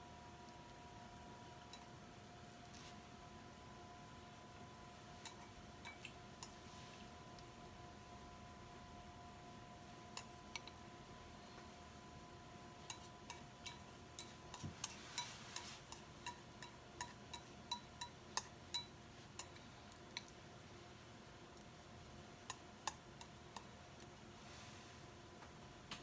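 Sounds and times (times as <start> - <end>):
faint steady hum: 0.0 - 26.0
utensils clinking on dishes: 5.2 - 6.6, 12.9 - 19.6.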